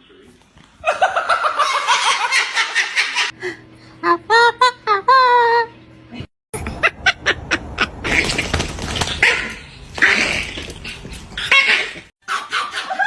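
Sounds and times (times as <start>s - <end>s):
dog barking: 12.2s - 13.0s.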